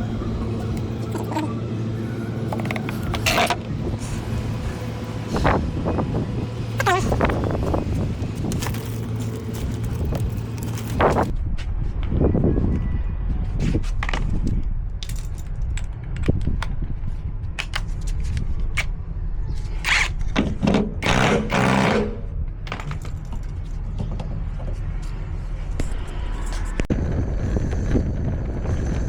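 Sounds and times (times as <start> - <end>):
metal scraping: 0.0 - 11.3
low hum: 0.0 - 29.0
metal tools clinking: 6.7 - 11.3.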